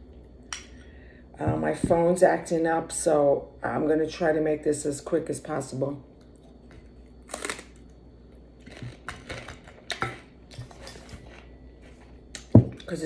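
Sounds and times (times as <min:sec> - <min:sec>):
person chewing food: 0:08.6 - 0:12.5.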